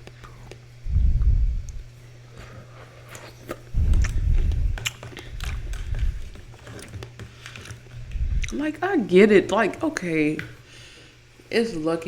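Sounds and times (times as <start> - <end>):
chewing cereal: 2.3 - 8.8.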